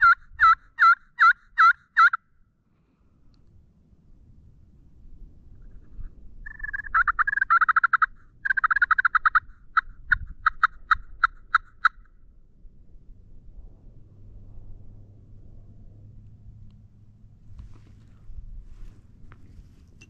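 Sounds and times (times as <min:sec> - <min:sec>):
turkey calling and yelping: 0:00.0 - 0:02.2, 0:06.5 - 0:12.1.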